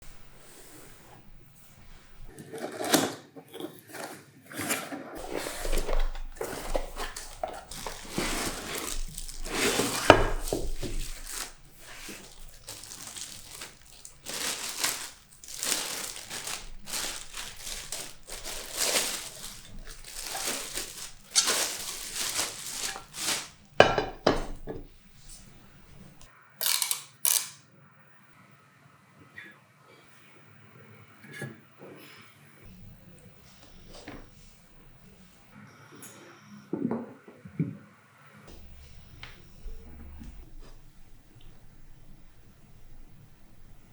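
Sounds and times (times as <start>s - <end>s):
packaging crinkling and tearing: 5.2s - 24.9s, 26.0s - 27.5s.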